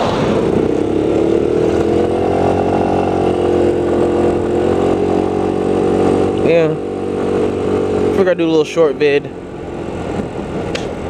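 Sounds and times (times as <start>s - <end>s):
wind noise: 0.0s - 6.4s
motorcycle engine running: 0.0s - 11.0s.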